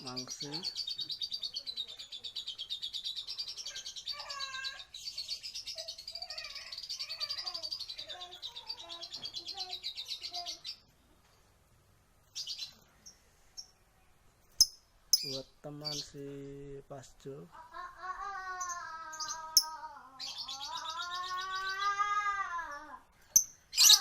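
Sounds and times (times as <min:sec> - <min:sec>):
lower bird chirps: 0:14.4 - 0:16.2
lovebird rapid chattering song: 0:14.6 - 0:16.2, 0:23.4 - 0:24.0.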